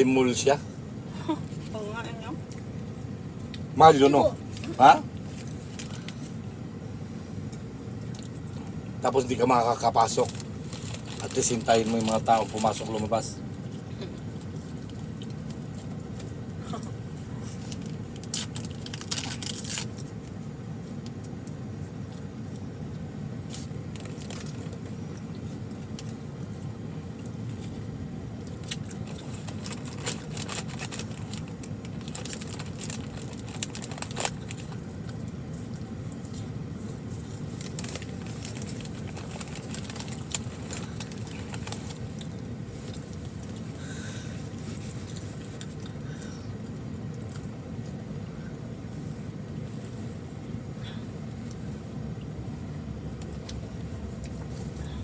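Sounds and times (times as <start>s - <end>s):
car interior hum: 0.0s - 55.0s
food packaging rustling: 10.1s - 13.1s, 28.6s - 35.2s, 36.8s - 45.8s.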